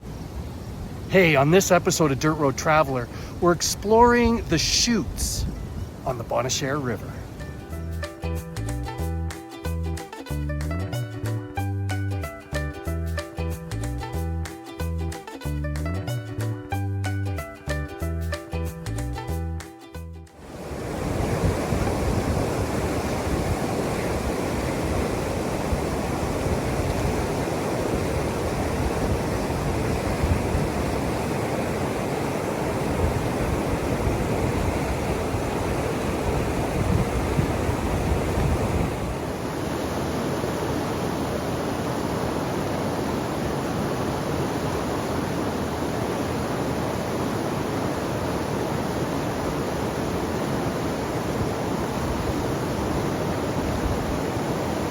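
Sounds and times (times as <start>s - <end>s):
waterfall rushing: 0.0s - 7.7s, 20.4s - 54.9s.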